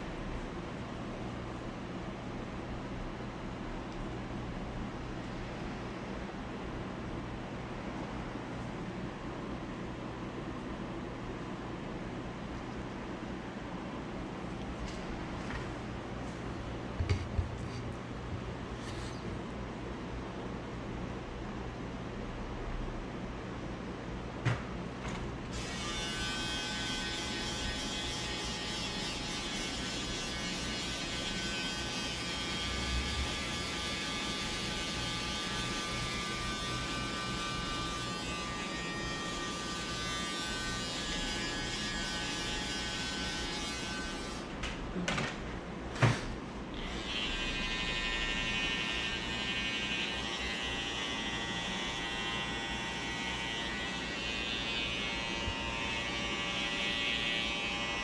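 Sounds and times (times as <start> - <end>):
electric hair trimmer buzzing: 25.5 - 44.5, 46.8 - 58.0.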